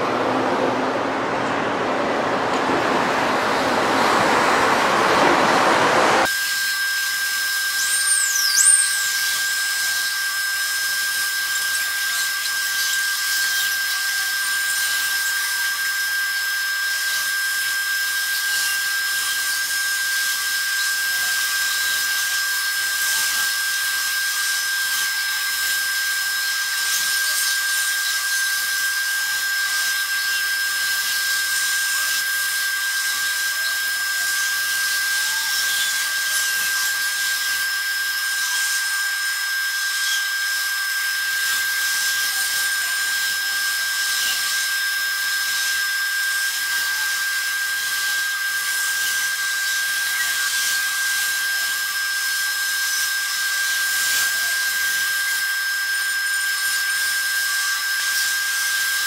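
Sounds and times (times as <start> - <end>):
train running noise: 0.0 - 6.2
high-pitched electric whine: 0.0 - 59.0.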